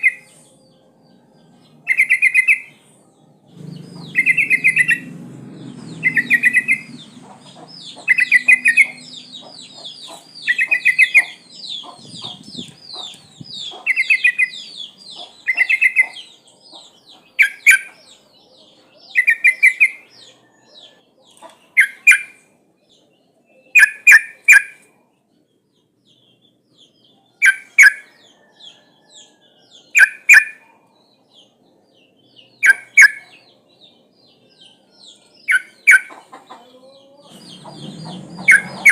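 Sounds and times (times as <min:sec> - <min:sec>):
bird calls: 0:00.0 - 0:00.4, 0:03.5 - 0:22.5, 0:23.5 - 0:25.0, 0:32.4 - 0:33.6, 0:34.7 - 0:38.9.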